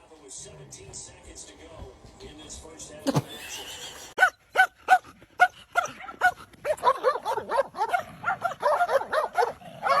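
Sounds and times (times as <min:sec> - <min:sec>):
dog yipping: 0:04.2 - 0:10.0.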